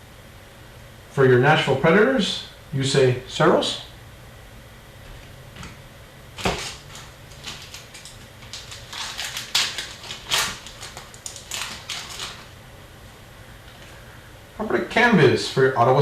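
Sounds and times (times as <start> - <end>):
cards and packs rustling: 6.4 - 12.6.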